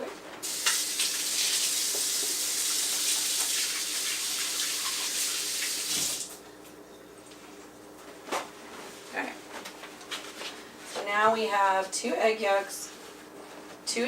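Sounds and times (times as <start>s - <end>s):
faucet water running: 0.4s - 6.4s.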